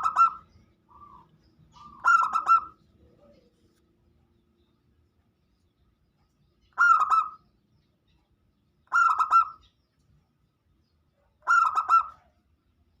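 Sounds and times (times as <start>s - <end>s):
dove cooing: 0.0s - 3.5s, 6.8s - 7.4s, 8.9s - 9.7s, 11.4s - 12.4s.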